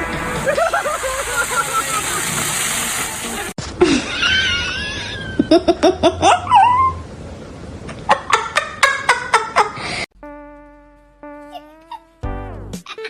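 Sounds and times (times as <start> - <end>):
person laughing: 0.4 - 2.4, 3.8 - 6.9, 11.5 - 12.1.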